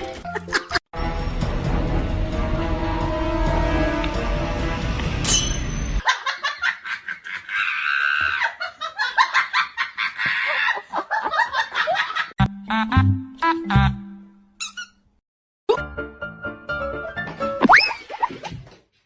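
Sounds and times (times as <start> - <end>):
music: 0.0 - 5.3, 12.4 - 14.4, 15.7 - 17.7.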